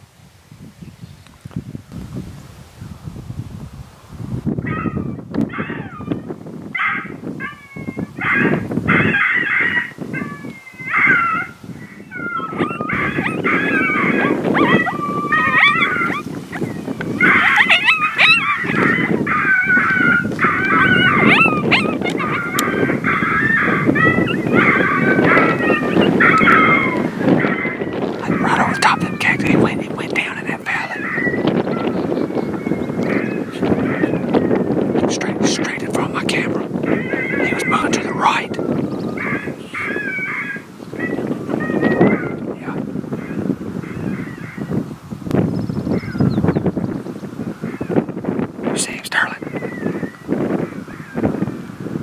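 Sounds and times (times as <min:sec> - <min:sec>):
wind rumbling on microphone: 0:00.0 - 0:52.0
coyote predator call yips and howls: 0:04.6 - 0:29.3, 0:30.4 - 0:34.5, 0:36.8 - 0:42.5.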